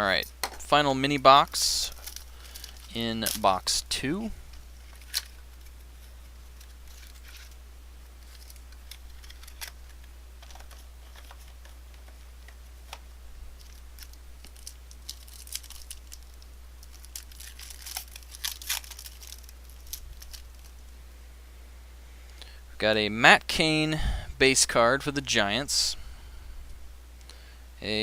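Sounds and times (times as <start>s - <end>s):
steady low hum: 0.0s - 28.0s
card wrappers crinkling and tearing: 1.8s - 3.8s, 4.5s - 7.6s, 8.2s - 13.0s, 13.6s - 20.8s.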